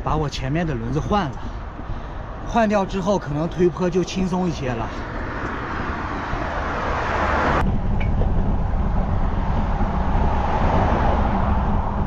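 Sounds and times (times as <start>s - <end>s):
steady rushing noise: 0.0s - 12.0s
low rumble: 4.9s - 12.0s.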